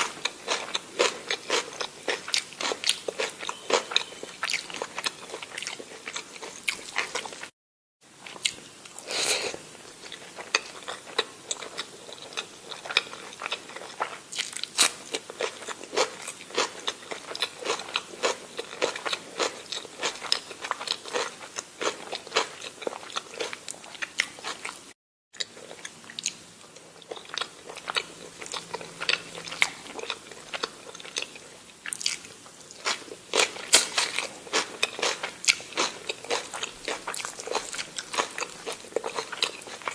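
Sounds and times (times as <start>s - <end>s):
person chewing and crunching food: 0.0s - 7.5s, 8.2s - 39.9s.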